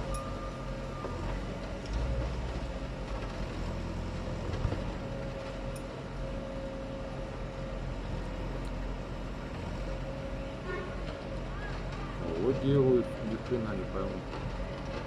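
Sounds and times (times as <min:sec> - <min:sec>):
heavy machinery engine humming: 0:00.0 - 0:15.0.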